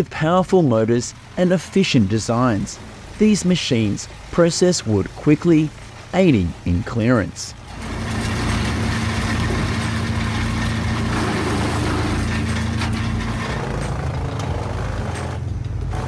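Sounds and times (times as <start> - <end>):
wood chipper engine running: 7.6 - 16.0.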